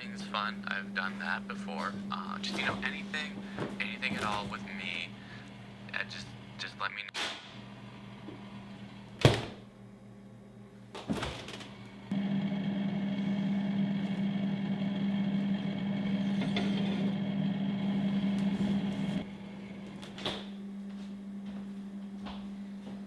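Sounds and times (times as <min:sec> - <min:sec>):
kitchen appliance humming: 0:11.7 - 0:20.1.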